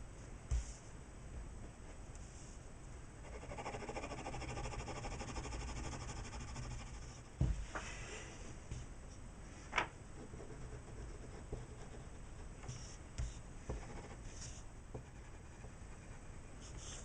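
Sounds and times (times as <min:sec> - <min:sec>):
pencil scratching on paper: 0:03.2 - 0:07.3, 0:10.3 - 0:17.0.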